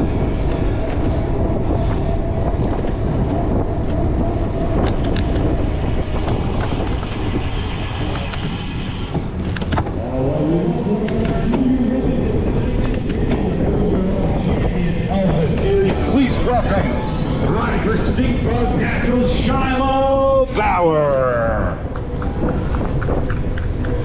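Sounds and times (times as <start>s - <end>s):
bike clicks and rattles: 0.0s - 16.8s, 21.8s - 24.0s
bike tyres rumbling on dirt: 0.0s - 20.3s.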